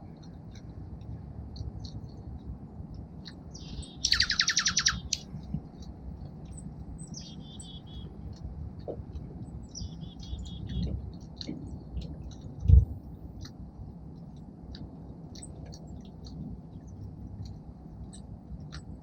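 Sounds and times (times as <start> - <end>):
songbird chips: 3.0 - 8.5, 9.2 - 13.6
songbird fast descending trill: 4.0 - 5.2.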